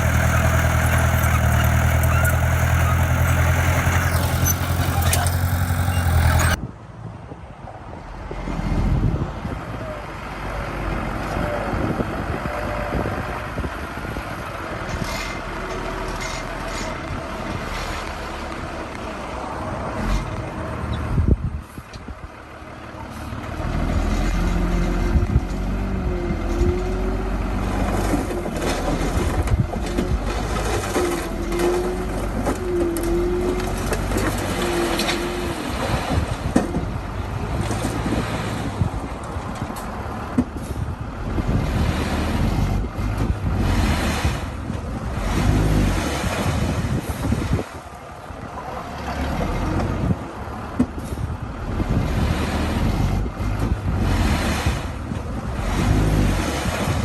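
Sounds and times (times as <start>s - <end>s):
diesel machinery engine under load: 0.0s - 6.6s, 8.3s - 57.0s
short squeals: 0.0s - 6.6s.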